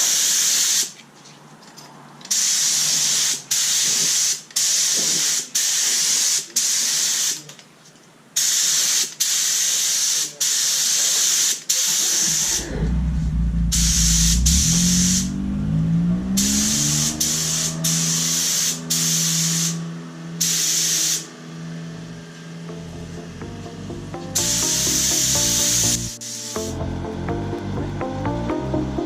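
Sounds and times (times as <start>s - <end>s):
paint spray hissing: 2.3s - 7.4s, 8.4s - 12.6s, 16.5s - 21.3s, 24.4s - 26.6s
background music with deep bass: 12.5s - 20.4s, 21.1s - 29.0s.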